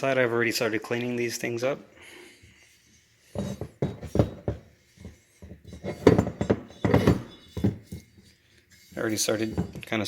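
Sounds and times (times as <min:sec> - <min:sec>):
metal objects knocking and clinking: 0:03.2 - 0:08.4, 0:09.4 - 0:10.0.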